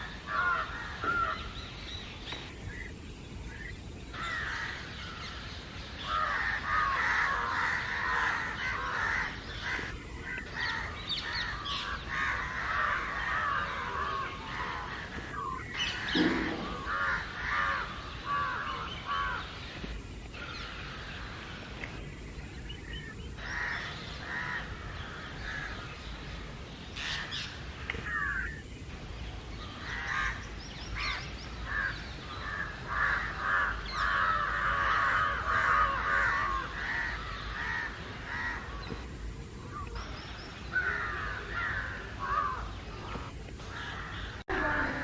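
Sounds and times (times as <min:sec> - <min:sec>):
crows cawing: 0:00.0 - 0:01.6, 0:04.1 - 0:19.8, 0:23.4 - 0:26.0, 0:27.0 - 0:28.6, 0:29.6 - 0:39.1, 0:40.7 - 0:45.0.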